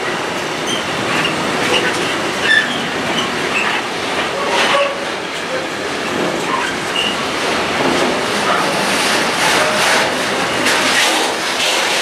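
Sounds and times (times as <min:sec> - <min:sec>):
train wheels rumbling on rail: 0:00.0 - 0:12.0
high wheel squeals: 0:00.6 - 0:03.8, 0:06.5 - 0:07.2.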